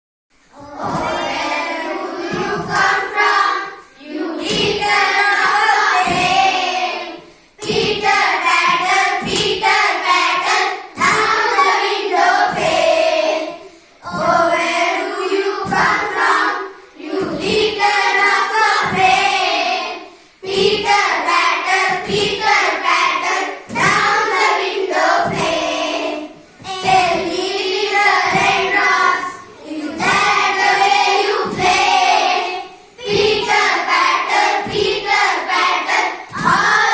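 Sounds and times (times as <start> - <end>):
children singing in unison: 0.5 - 36.9.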